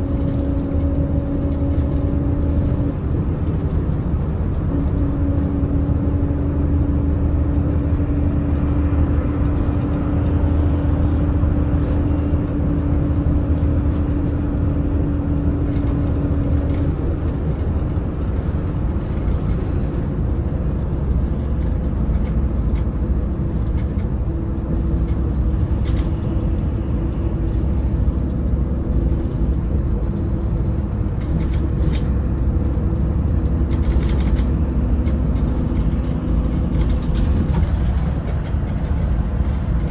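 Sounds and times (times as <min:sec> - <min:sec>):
bus engine droning: 0:00.0 - 0:39.9
tyre and road rumble: 0:00.0 - 0:39.9
light rattles: 0:24.9 - 0:39.9.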